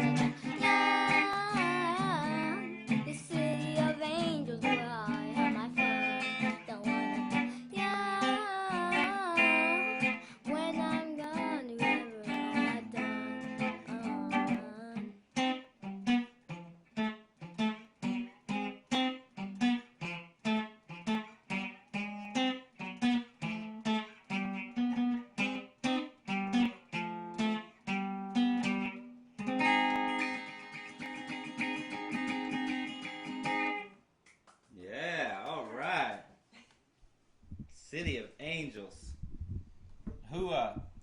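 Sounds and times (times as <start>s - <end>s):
plucked string instrument chords: 0.0s - 16.2s.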